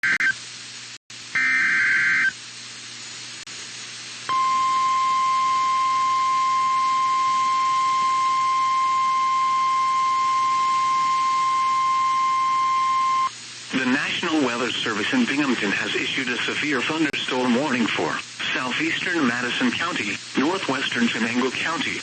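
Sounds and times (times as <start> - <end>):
radio hiss: 13.0 - 22.0.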